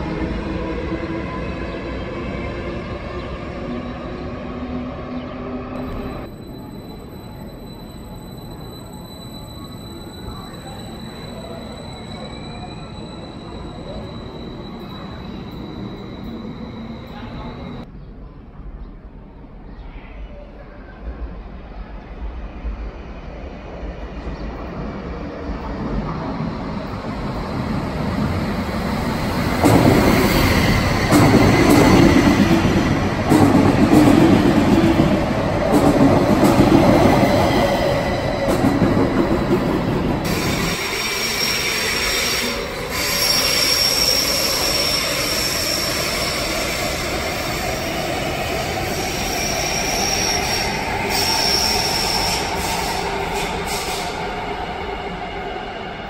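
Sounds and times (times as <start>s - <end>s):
electric train passing: 0.0s - 17.9s, 22.2s - 56.0s
wheels squealing: 5.2s - 17.8s, 28.4s - 54.3s.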